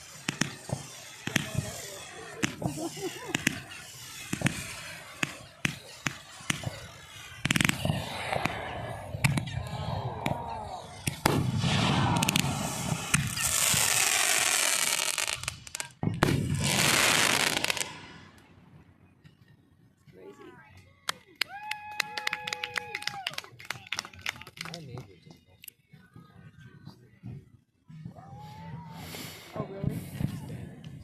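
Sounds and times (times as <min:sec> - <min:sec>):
fireworks bangs and pops: 0:00.0 - 0:18.5, 0:29.4 - 0:31.0
fireworks crackling: 0:00.0 - 0:18.6.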